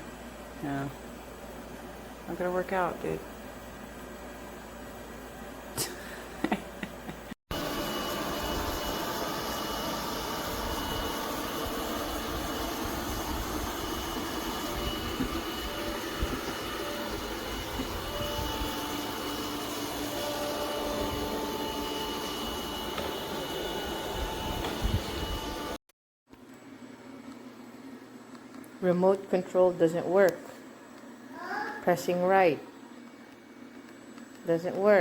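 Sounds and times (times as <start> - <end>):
robot vacuum cleaner running: 7.5 - 25.8.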